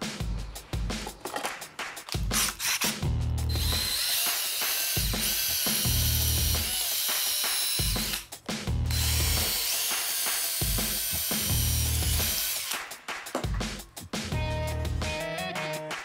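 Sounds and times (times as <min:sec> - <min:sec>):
drill boring into brick: 0:03.5 - 0:08.2, 0:08.9 - 0:12.8.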